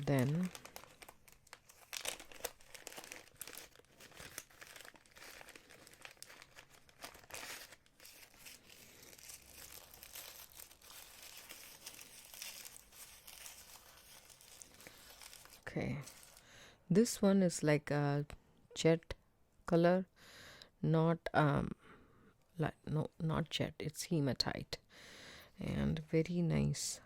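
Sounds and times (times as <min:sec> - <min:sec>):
packaging crinkling and rustling: 0:00.0 - 0:16.5.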